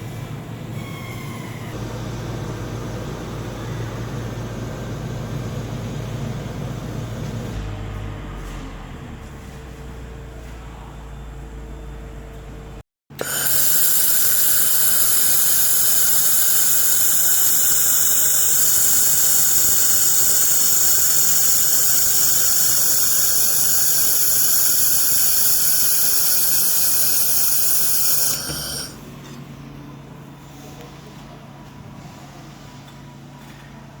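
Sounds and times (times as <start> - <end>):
laser welding machine hissing: 13.1 - 29.0.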